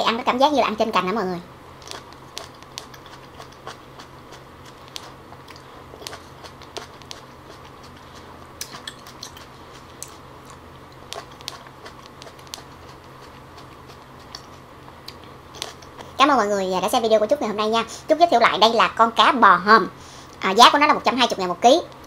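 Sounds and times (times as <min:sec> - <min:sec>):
chewing cherry tomatoes: 0:01.8 - 0:16.2.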